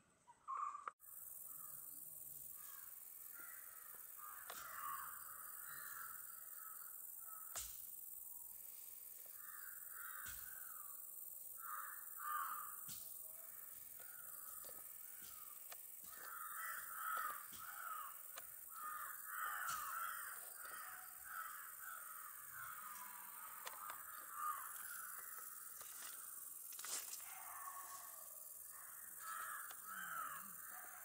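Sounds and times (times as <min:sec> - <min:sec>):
birds harsh calls: 0:15.3 - 0:25.4
faint clicks: 0:23.6 - 0:24.0.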